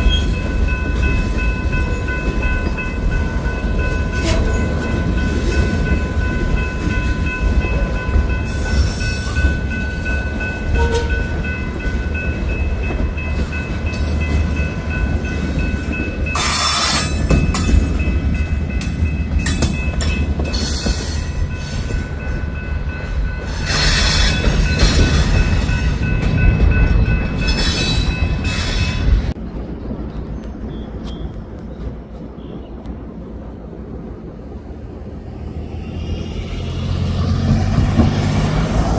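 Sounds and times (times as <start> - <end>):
train wheels squealing: 0.0 - 0.4, 8.5 - 9.6, 16.3 - 17.8, 23.4 - 25.9, 27.4 - 29.3
freight train rumbling past: 0.0 - 38.9.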